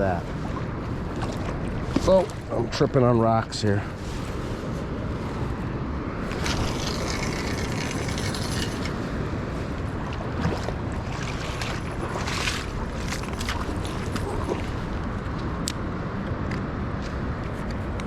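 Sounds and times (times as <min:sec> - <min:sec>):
river water rushing: 0:03.9 - 0:16.2.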